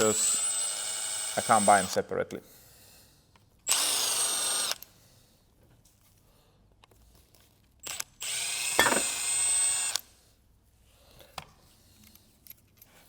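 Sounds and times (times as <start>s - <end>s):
electric ratchet whining: 3.7s - 4.9s, 7.8s - 10.0s.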